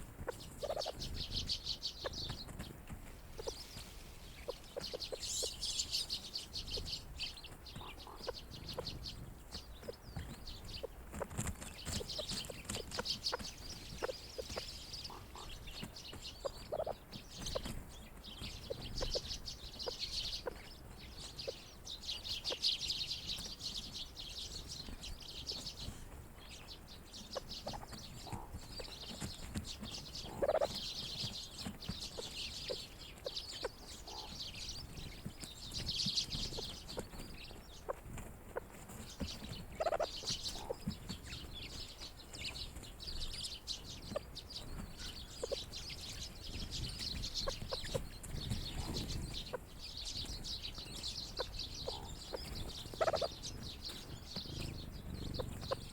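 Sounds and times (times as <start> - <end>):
birds twittering and chattering: 0.0 - 55.9
louder lower bird calls: 51.0 - 55.9.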